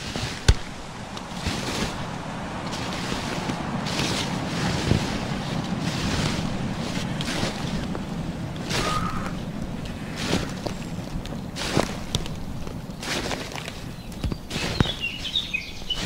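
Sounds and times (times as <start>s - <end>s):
water washing: 0.0s - 16.0s
wind: 0.0s - 16.0s.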